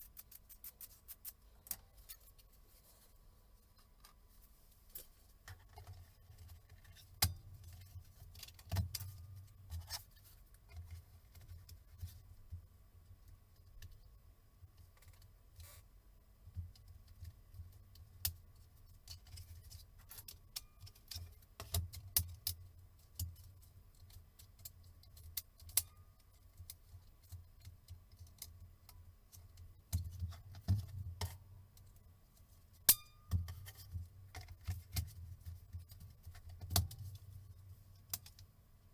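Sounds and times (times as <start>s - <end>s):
tools and small parts clicking: 0.0s - 2.5s.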